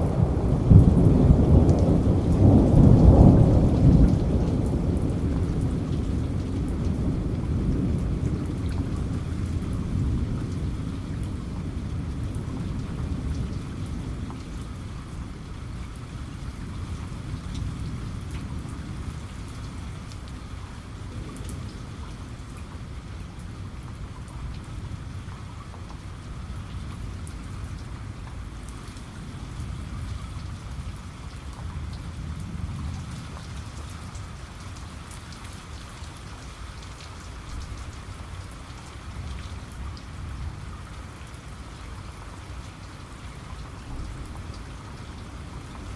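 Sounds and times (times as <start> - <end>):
low thunder rumble: 0.0 - 35.0
steady rain: 0.0 - 45.9.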